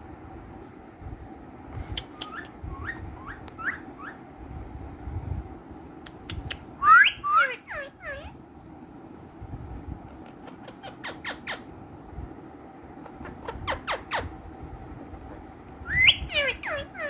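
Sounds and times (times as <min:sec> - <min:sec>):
parakeet whistling: 0:02.2 - 0:04.2, 0:06.8 - 0:08.3, 0:15.8 - 0:17.0
sharp clicks: 0:06.1 - 0:06.7.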